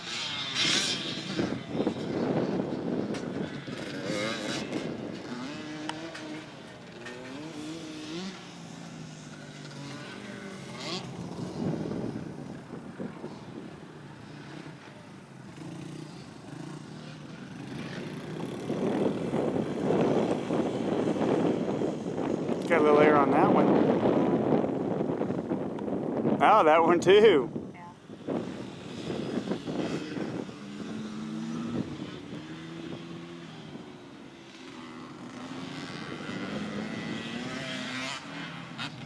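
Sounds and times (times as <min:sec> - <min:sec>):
dirt bike engine revving: 0:00.0 - 0:27.2, 0:28.0 - 0:39.0.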